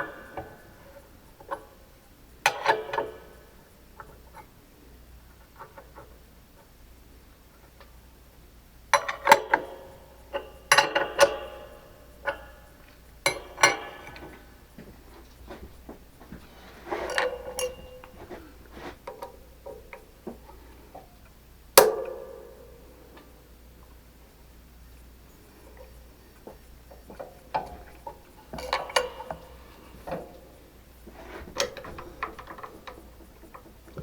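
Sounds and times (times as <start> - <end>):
metal tools clanking on metal: 9.0 - 20.5, 27.0 - 34.0.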